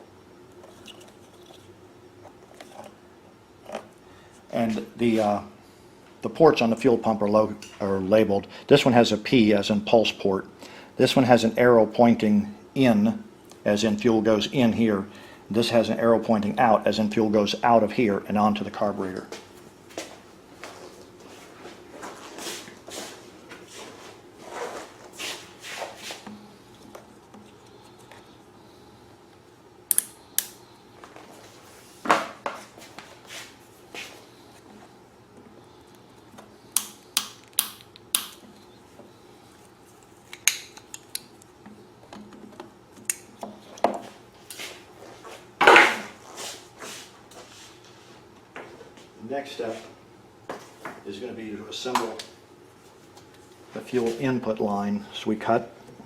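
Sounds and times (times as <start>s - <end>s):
clicks and knocks of tools: 40.3s - 44.0s.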